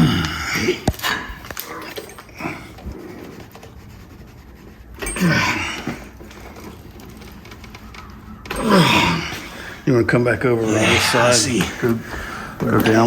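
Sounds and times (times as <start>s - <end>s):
man grunting with effort: 8.5s - 9.6s.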